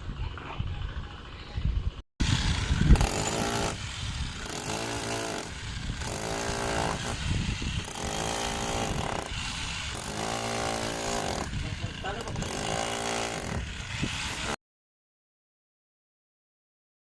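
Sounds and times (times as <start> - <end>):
power tool buzzing: 2.2 - 14.6.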